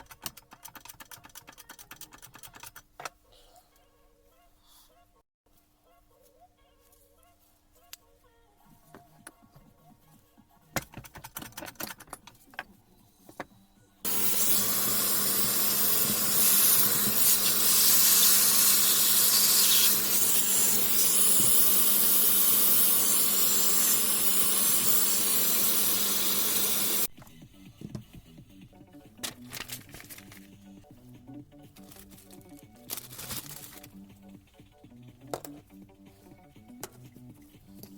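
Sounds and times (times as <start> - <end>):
pressurised jet hissing: 14.1 - 27.1.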